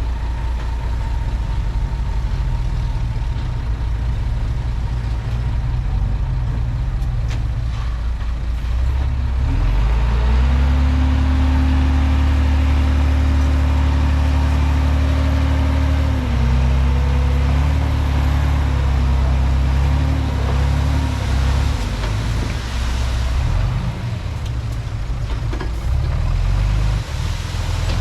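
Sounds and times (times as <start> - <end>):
bulldozer diesel engine revving: 8.8 - 28.0.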